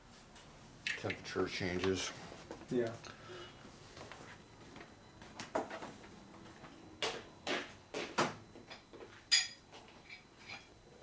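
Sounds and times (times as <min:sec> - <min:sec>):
metal tools knocking and clinking: 0:08.7 - 0:10.7.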